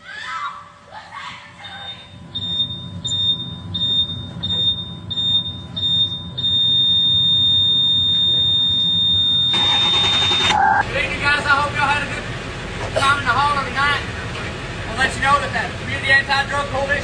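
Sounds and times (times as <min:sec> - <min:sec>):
engine rumble: 0:00.7 - 0:17.0
electronic beeper: 0:01.8 - 0:10.8.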